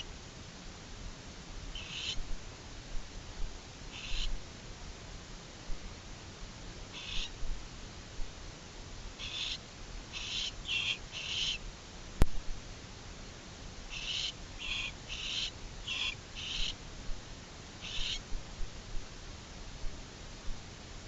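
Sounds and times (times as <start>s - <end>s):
owls raspy hissing calls: 1.8s - 2.2s, 3.9s - 4.4s, 6.9s - 7.4s, 9.2s - 11.6s, 13.9s - 16.8s, 17.8s - 18.3s.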